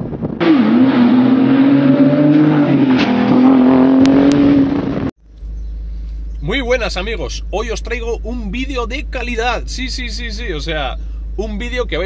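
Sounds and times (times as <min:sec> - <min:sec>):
car engine revving high: 0:00.2 - 0:05.1
low steady hum: 0:05.2 - 0:12.0.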